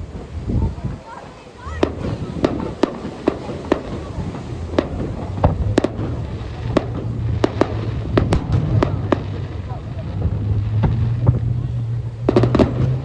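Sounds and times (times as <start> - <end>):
fireworks bangs: 0.0 - 13.0
low rumble: 4.2 - 13.0.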